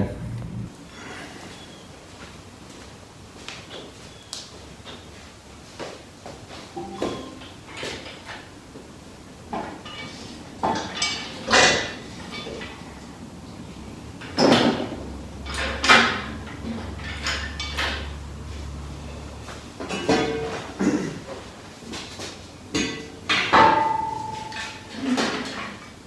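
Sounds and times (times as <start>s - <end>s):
low hum: 0.0s - 0.8s
tools and metal parts clanking: 9.6s - 13.0s, 14.2s - 20.8s, 22.0s - 25.9s.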